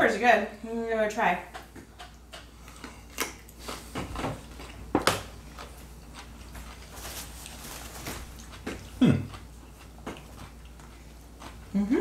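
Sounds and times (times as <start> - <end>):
soft chewing: 1.4 - 12.0
person humming: 11.7 - 12.0.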